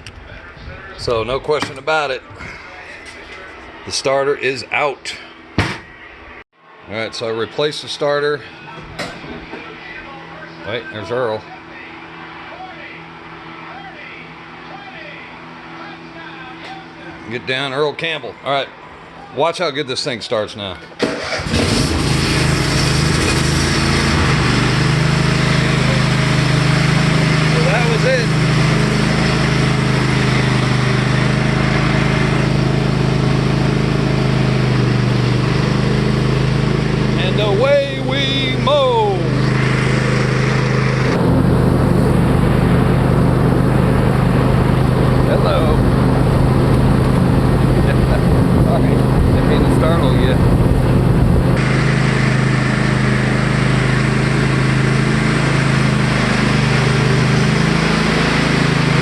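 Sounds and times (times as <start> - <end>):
riding lawn mower engine running: 21.0 - 59.0.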